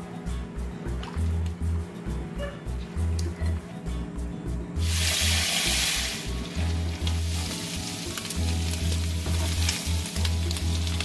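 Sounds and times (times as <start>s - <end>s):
background music with pulsing bass: 0.0s - 11.0s
octopus sizzling in hot oil: 4.8s - 11.0s.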